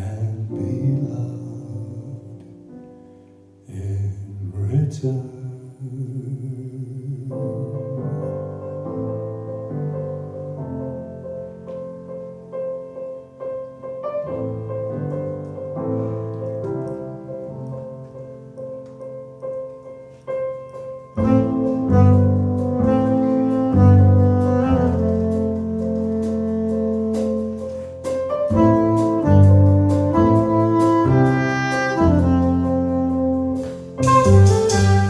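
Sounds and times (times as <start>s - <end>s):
slow keyboard chords: 5.7s - 35.0s
deep bass part: 21.2s - 35.0s.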